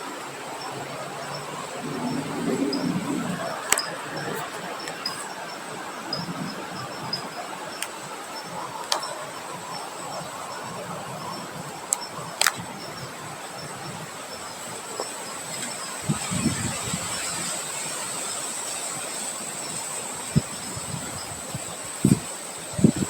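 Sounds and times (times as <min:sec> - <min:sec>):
rain and wind hiss: 0:00.0 - 0:23.0.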